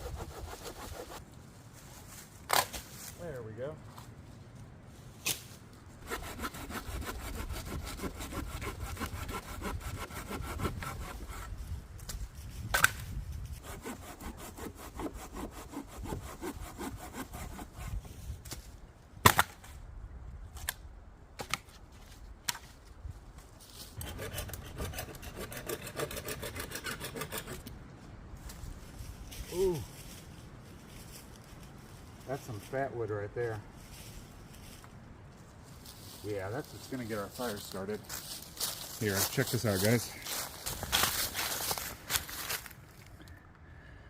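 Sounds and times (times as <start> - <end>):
hand saw cutting wood: 0.0 - 1.2, 6.0 - 11.5, 13.6 - 18.1, 24.0 - 27.7.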